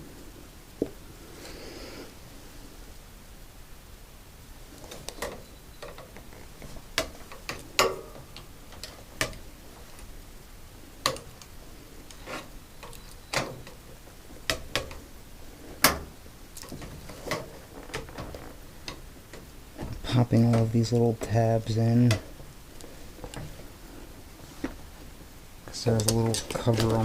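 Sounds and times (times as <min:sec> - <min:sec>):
tools clicking and knocking on panels: 0:04.9 - 0:10.1, 0:11.0 - 0:11.5, 0:12.8 - 0:15.0, 0:15.8 - 0:21.4, 0:22.0 - 0:22.5, 0:25.8 - 0:27.0.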